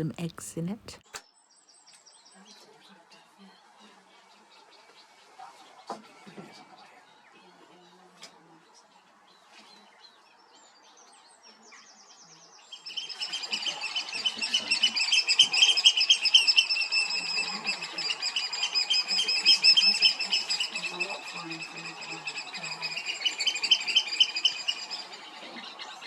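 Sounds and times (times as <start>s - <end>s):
oystercatchers piping: 12.8s - 26.0s.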